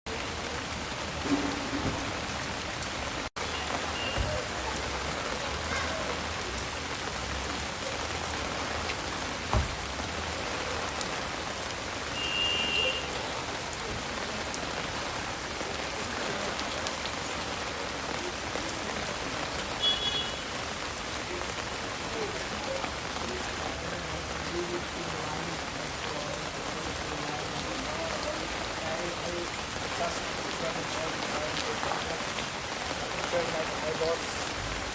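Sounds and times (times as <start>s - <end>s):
heavy rain pattering: 0.1s - 34.9s
knock: 1.3s - 2.3s, 9.5s - 9.8s.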